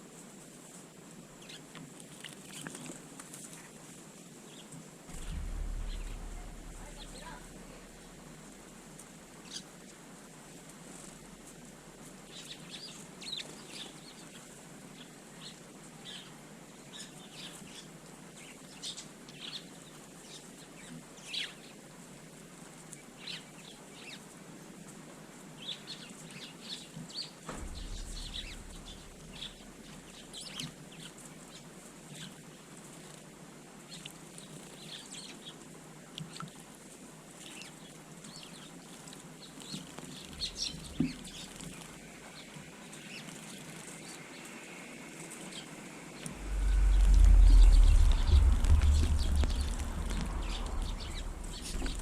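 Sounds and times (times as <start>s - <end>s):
low rumble: 5.1s - 9.0s, 27.5s - 30.1s, 46.1s - 52.0s
sparrows chirping: 39.4s - 44.4s.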